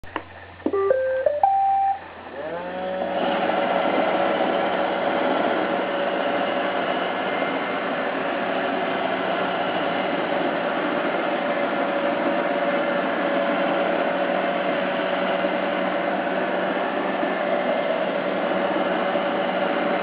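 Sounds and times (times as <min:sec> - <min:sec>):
robot vacuum start-up chime: 0:00.7 - 0:02.1.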